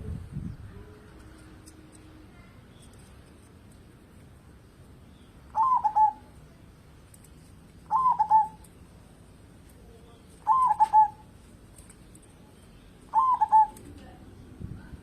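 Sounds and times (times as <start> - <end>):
dove cooing: 5.5 - 6.3, 7.9 - 8.6, 10.4 - 11.3, 13.1 - 13.8.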